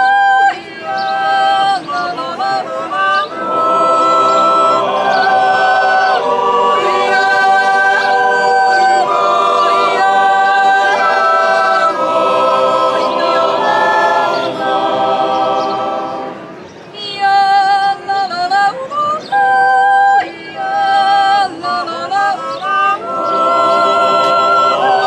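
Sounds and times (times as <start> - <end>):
solo voice yodeling: 0.0 - 5.2, 17.2 - 25.0
choir holding chords: 0.0 - 17.4, 18.2 - 25.0.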